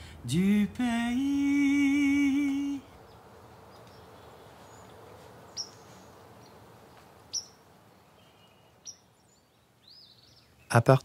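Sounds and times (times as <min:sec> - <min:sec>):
faint outdoor hiss: 0:00.0 - 0:11.0
high bird chirps: 0:03.0 - 0:10.8.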